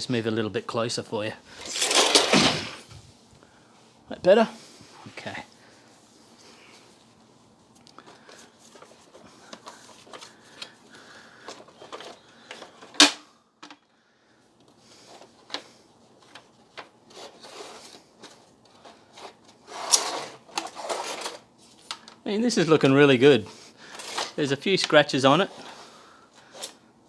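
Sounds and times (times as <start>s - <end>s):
plastic parts clicking and knocking: 1.6s - 2.7s, 11.4s - 13.8s.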